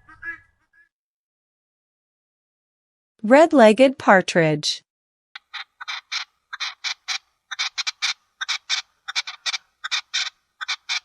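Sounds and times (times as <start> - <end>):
partridge calling: 5.4 - 11.0.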